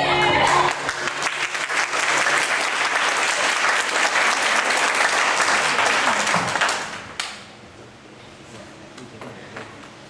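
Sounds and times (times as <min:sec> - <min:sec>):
audience applauding: 0:00.4 - 0:07.4.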